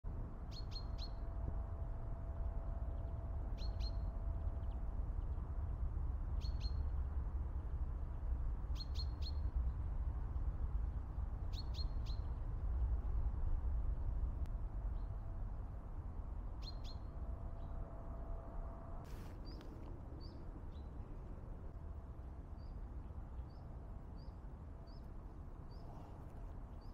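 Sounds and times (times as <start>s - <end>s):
steady low rumble: 12.2s - 26.9s.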